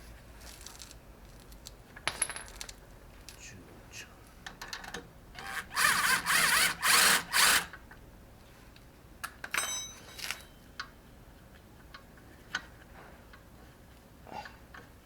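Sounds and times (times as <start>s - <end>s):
power tool motor bursts: 5.4s - 7.8s.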